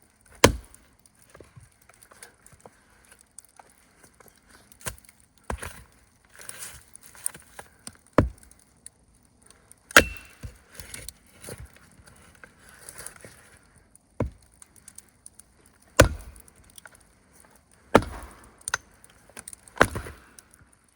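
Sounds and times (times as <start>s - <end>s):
rustling and crunching: 0.0s - 20.9s
sharp wooden strikes: 10.0s - 10.5s, 16.0s - 16.4s, 18.0s - 18.7s, 19.8s - 20.2s.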